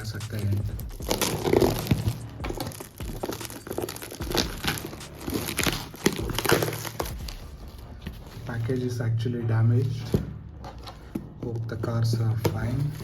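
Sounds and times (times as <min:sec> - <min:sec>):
packaging crinkling and tearing: 0:00.9 - 0:07.6.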